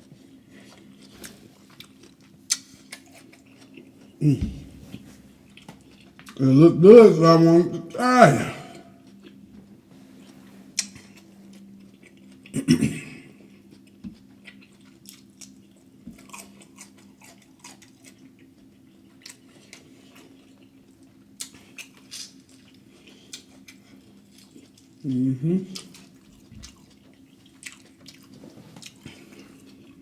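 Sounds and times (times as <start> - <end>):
faint low hum: 0.0 - 30.0
chewing and mouth smacking: 0.5 - 4.2, 4.9 - 6.4, 10.8 - 12.6, 13.3 - 30.0.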